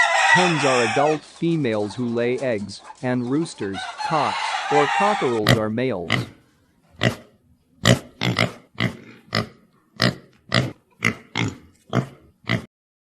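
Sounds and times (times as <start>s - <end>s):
animal grunting: 5.1s - 6.4s, 7.0s - 12.7s.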